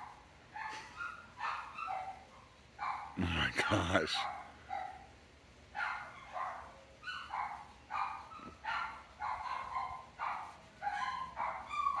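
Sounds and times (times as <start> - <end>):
dog barking and yipping: 1.4 - 2.2, 2.8 - 3.2, 5.8 - 12.0.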